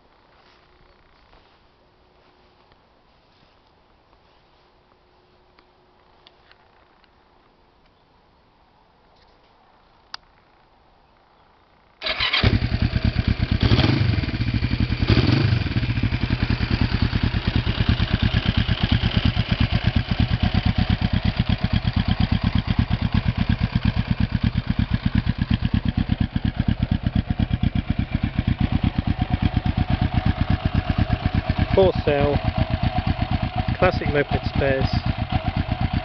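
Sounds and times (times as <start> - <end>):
motorcycle engine starting and idling: 12.0 - 36.0.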